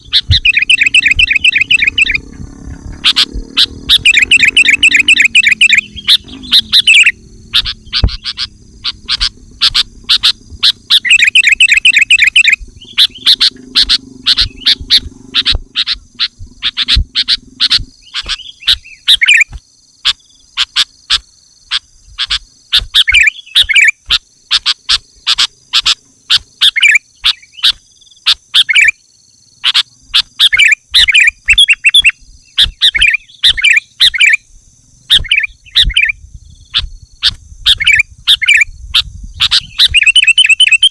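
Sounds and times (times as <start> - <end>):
steady high whine: 0.0 - 27.1
bulbul calling: 0.0 - 29.0, 29.6 - 40.9.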